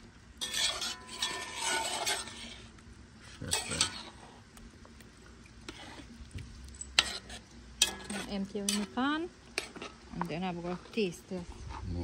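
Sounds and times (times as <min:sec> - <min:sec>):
spoon scraping a pot: 0:00.4 - 0:02.7, 0:03.4 - 0:04.4, 0:05.6 - 0:09.0, 0:09.6 - 0:10.0.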